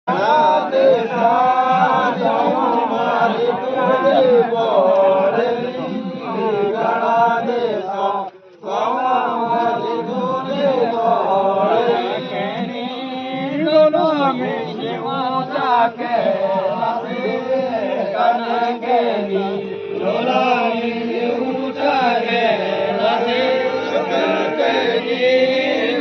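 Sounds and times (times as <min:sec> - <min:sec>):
person chanting: 0:00.1 - 0:26.0.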